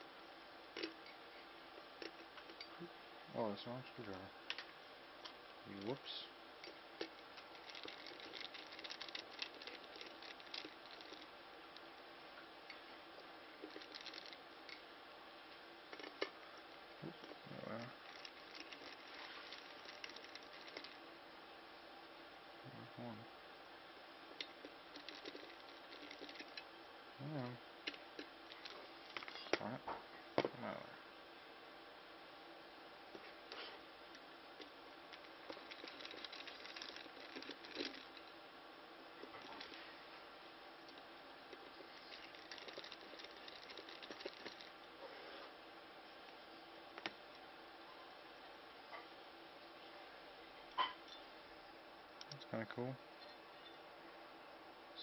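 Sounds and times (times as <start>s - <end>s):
small plastic and metal parts clicking: 6.6s - 11.9s, 13.6s - 14.8s, 17.2s - 21.0s, 24.4s - 26.7s, 34.1s - 38.3s, 40.9s - 44.7s.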